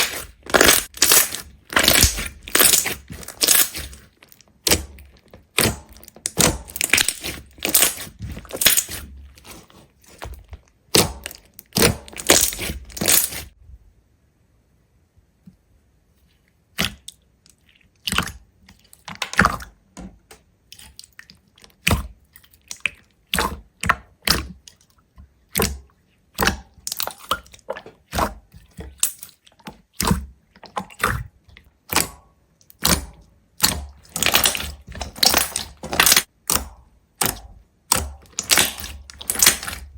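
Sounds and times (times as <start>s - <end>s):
sharp cracks and crunches: 0.0s - 13.6s, 32.7s - 39.9s.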